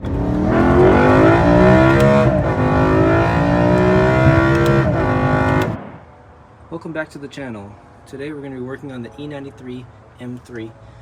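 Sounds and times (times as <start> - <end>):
car engine accelerating hard: 0.0 - 5.8.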